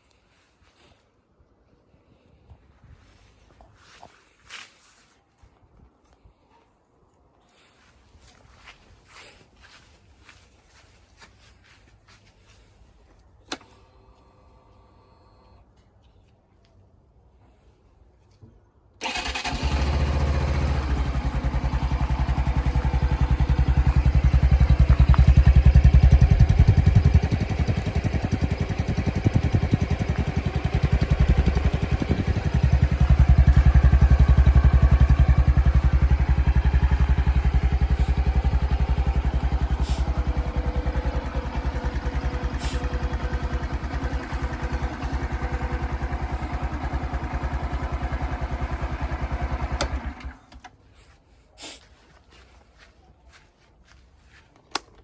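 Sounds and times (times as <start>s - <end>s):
motorcycle engine starting and idling: 19.0s - 51.1s.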